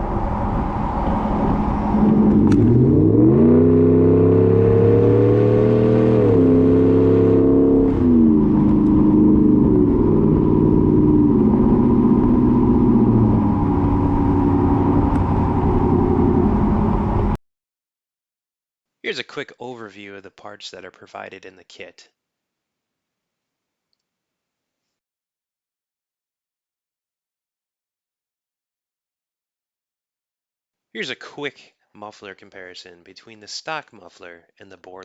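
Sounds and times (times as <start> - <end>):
car engine revving: 0.0 - 17.4.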